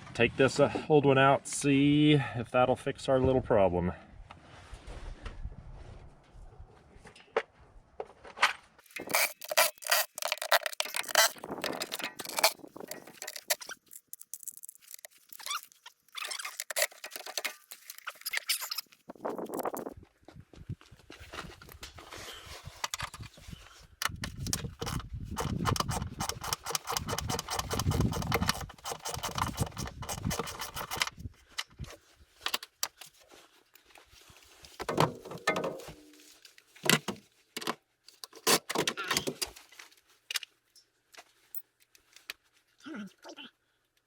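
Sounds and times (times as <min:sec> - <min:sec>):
hand tools and metal parts rattling: 0:08.3 - 0:19.8, 0:21.2 - 0:33.9, 0:34.7 - 0:39.6.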